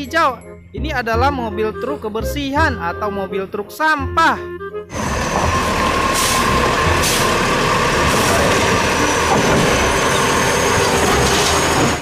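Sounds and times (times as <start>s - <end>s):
truck engine rumble: 4.9s - 12.0s
air brake hisses: 6.1s - 7.4s.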